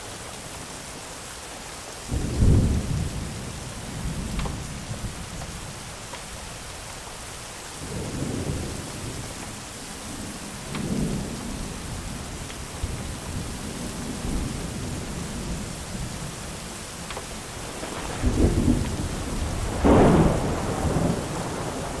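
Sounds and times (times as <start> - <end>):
steady rain: 0.0 - 22.0
thunder rumbling: 2.1 - 5.8, 7.8 - 22.0
wood fire crackling: 17.0 - 22.0.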